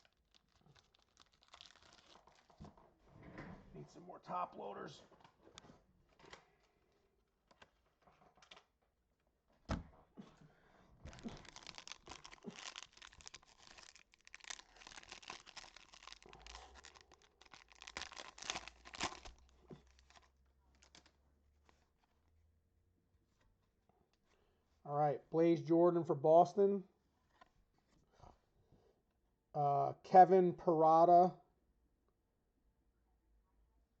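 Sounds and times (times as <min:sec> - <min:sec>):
wrapping torn and crinkled: 0:00.0 - 0:02.6, 0:11.1 - 0:21.2.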